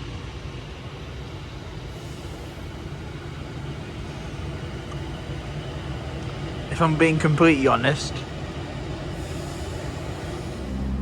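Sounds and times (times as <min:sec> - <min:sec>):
railway station rumble: 0:00.0 - 0:11.0
low hum: 0:09.2 - 0:11.0.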